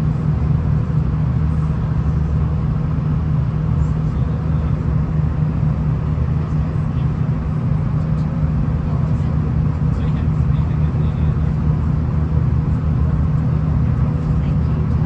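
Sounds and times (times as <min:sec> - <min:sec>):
railcar engine drone: 0:00.0 - 0:15.0
wheels rumbling on track: 0:00.0 - 0:15.0.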